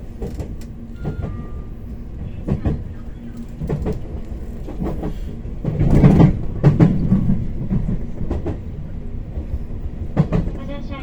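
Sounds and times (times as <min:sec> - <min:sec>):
train rumbling: 0:00.0 - 0:11.0
wheels clacking over rail joints: 0:02.4 - 0:08.7.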